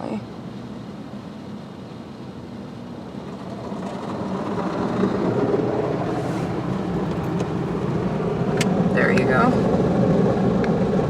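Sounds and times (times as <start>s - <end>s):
car wash machinery running: 1.8s - 10.5s.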